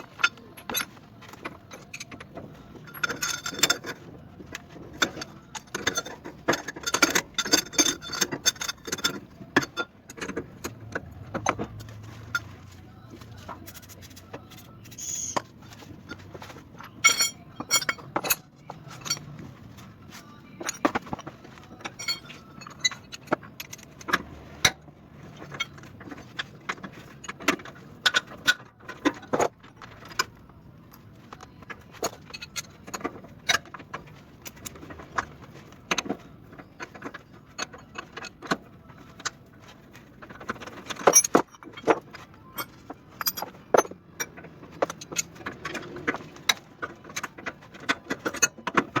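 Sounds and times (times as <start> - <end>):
metal hand tools clinking: 16.8 - 19.4, 20.6 - 24.4, 40.8 - 47.3.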